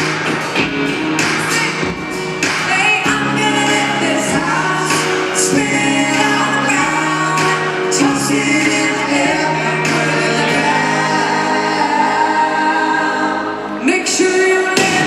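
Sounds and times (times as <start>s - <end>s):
instrumental backing: 0.0s - 15.0s
voices singing in harmony: 2.5s - 15.0s.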